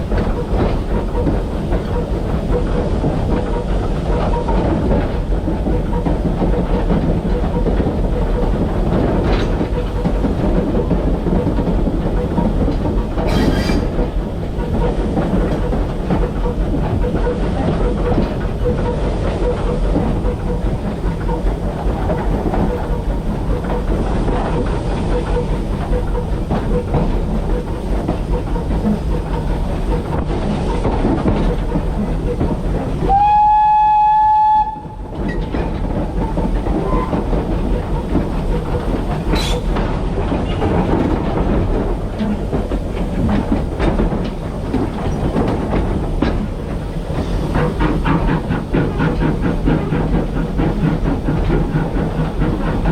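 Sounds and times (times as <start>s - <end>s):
steam locomotive rumbling: 0.0s - 52.9s
train whistle blast: 33.0s - 35.0s.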